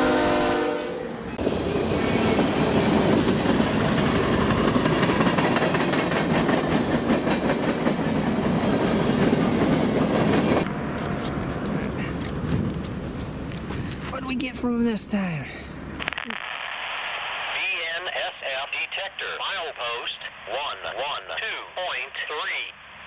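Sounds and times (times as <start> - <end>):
train horn blast: 0.0 - 1.2
freight train rumble: 0.0 - 14.6
wheels clacking over rail joints: 1.4 - 11.1.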